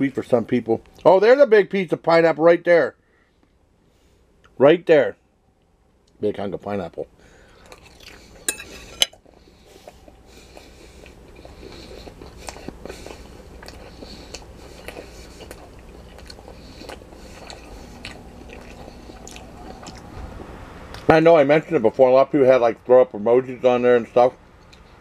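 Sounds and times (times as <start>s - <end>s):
person chewing: 7.5s - 21.1s.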